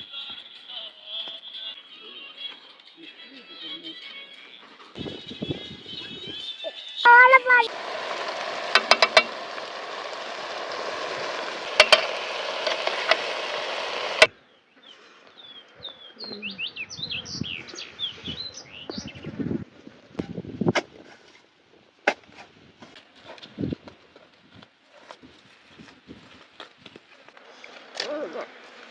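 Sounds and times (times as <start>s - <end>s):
birds chirping: 5.0s - 19.4s
steady hiss: 7.7s - 14.3s
sharp clicks: 8.3s - 14.3s.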